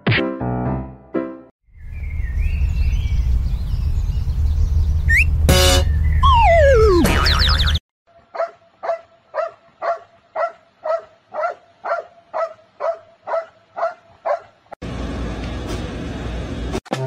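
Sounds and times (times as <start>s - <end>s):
dog barking: 8.3s - 14.6s.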